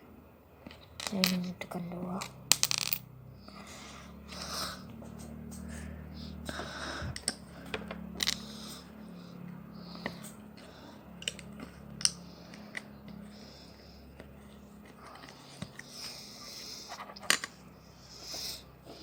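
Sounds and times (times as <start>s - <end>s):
low steady hum: 0.0s - 19.0s
plastic pieces clicking together: 11.2s - 12.8s, 17.2s - 17.6s.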